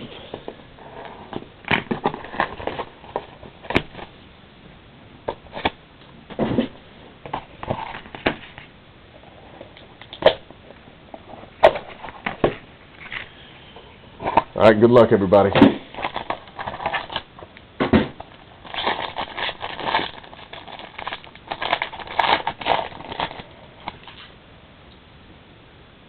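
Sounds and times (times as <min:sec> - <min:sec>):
packaging crinkling and clicking: 0:15.9 - 0:17.6, 0:18.2 - 0:24.3.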